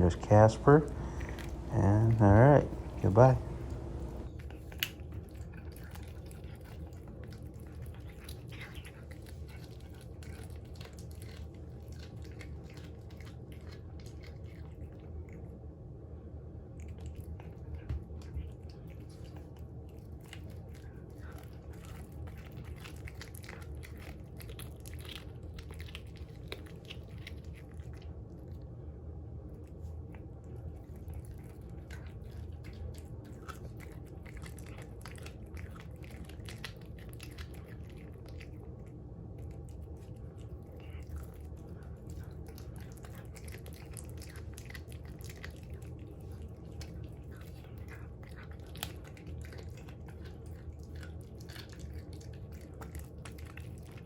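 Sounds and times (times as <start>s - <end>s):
steady low hum: 0.0s - 10.4s, 26.5s - 54.0s
cat chewing raw meat: 0.0s - 54.0s.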